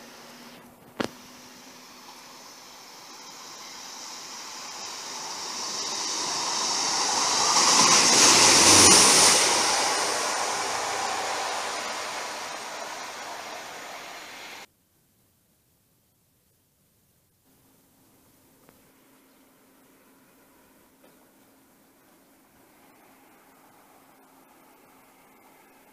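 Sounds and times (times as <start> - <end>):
train passing rushing rumble: 1.2 - 14.7.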